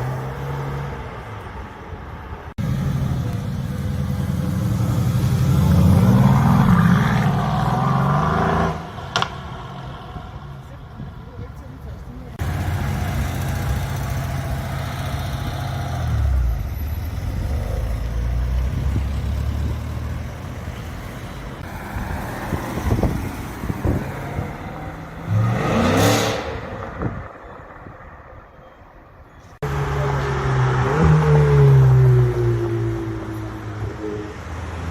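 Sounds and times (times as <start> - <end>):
engine revving: 2.6 - 9.3, 12.4 - 23.2, 23.8 - 26.7.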